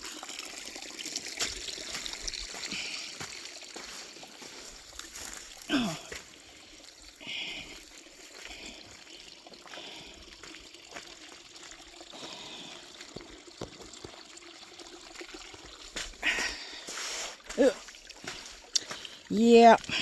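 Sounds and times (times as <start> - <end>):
shallow water trickling: 0.0 - 20.0
squelching footsteps in mud: 1.2 - 12.8, 15.6 - 20.0.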